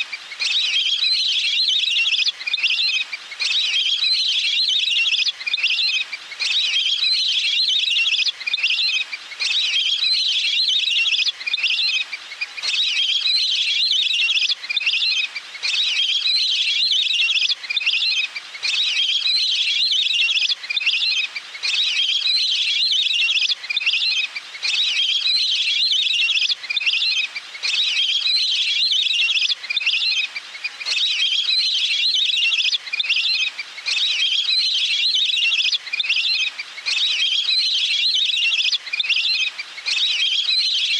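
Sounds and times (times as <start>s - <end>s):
waterbird trilling call: 12.6s - 40.9s.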